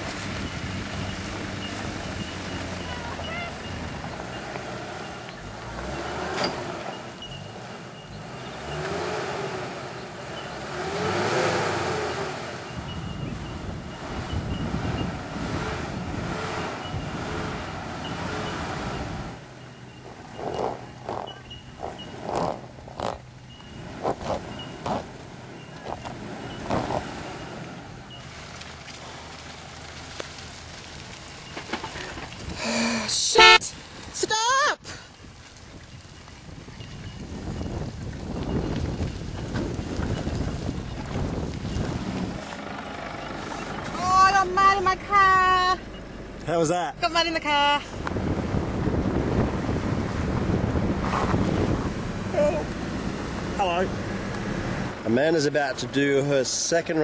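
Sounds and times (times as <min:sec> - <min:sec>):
wind noise on microphone: 0:00.0 - 0:04.3, 0:12.6 - 0:19.4, 0:35.0 - 0:42.5, 0:47.9 - 0:55.0
engine revving in mud: 0:00.0 - 0:33.7, 0:36.0 - 0:57.0.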